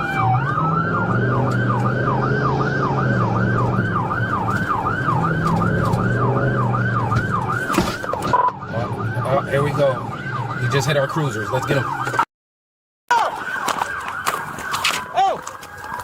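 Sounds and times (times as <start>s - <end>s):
car engine and road noise: 0.0s - 12.3s
police siren yelp: 0.0s - 12.3s, 13.1s - 16.0s.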